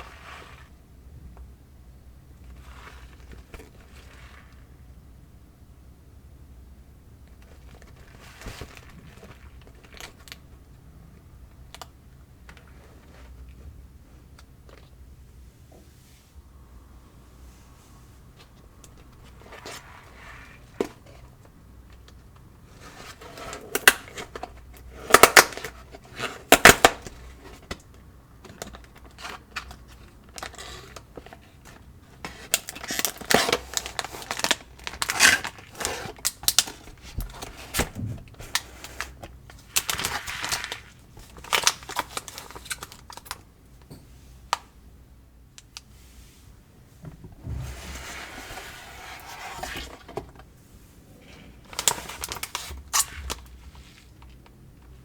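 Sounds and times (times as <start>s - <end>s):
plastic packaging crinkling: 7.4s - 10.4s, 28.6s - 43.4s, 51.7s - 54.5s
packaging tearing: 32.5s - 43.3s.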